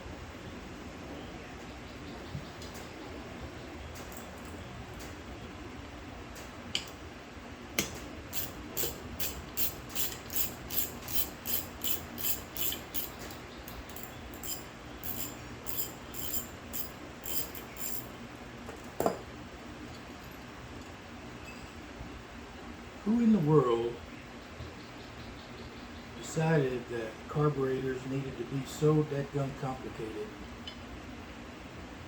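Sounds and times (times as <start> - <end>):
tool knocks: 19.0 - 19.2.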